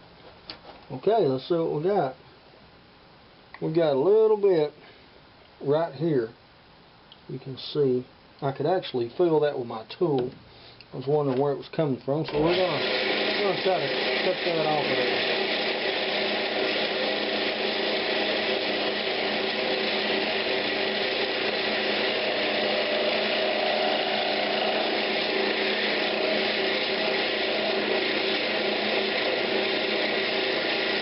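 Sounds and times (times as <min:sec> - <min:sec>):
wood lathe motor hum: 0:12.3 - 0:31.0
hiss of wood being cut: 0:21.7 - 0:31.0.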